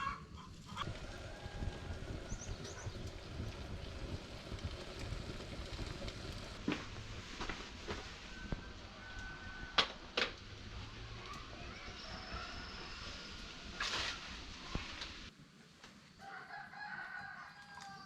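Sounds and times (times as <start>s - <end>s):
rooster crowing: 0.9s - 2.5s, 16.2s - 18.0s.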